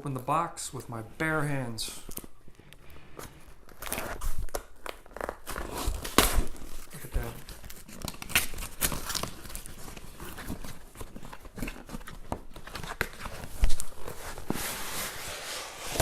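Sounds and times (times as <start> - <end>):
cardboard tearing: 3.7 - 16.0.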